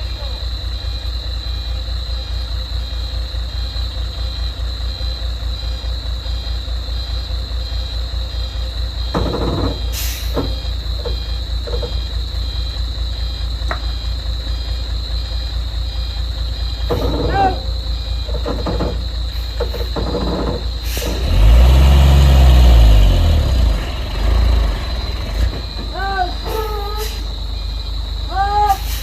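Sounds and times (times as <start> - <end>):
diesel engine idling: 0.0 - 29.0
short knocks: 9.1 - 12.1, 16.8 - 20.8
brief hiss: 10.0 - 10.4.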